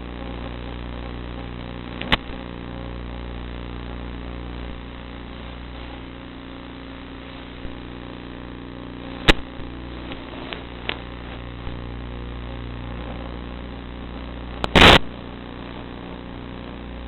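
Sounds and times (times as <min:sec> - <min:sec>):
sharp clicks: 0:02.0 - 0:02.4, 0:14.6 - 0:15.1.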